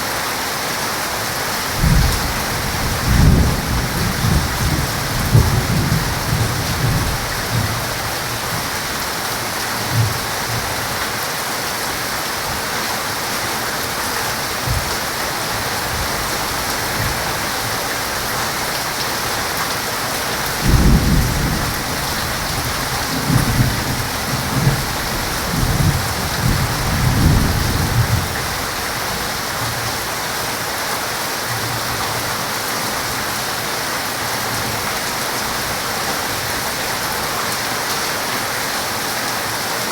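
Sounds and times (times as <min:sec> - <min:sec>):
heavy rain falling: 0:00.0 - 0:39.9
thunder rumbling: 0:01.7 - 0:08.6, 0:20.5 - 0:28.8.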